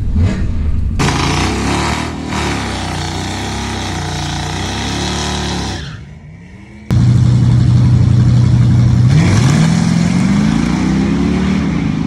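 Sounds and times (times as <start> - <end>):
heavy noise: 0.8 - 6.0, 6.9 - 10.3
car engine revving: 1.0 - 12.0.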